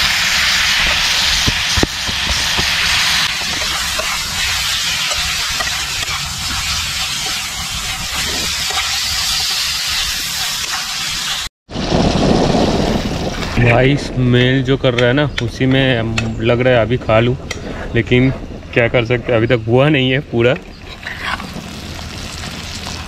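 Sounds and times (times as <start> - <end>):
chicken sizzling in a pan: 0.0 - 11.5
low rumble: 11.7 - 20.3.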